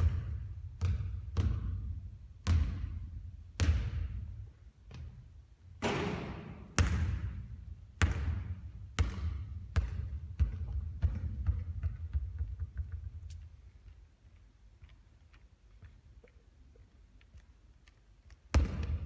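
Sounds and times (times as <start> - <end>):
basketball bouncing on court floor: 0.0 - 5.2, 5.8 - 13.5, 18.5 - 19.0
ringing ball hit: 5.8 - 6.8.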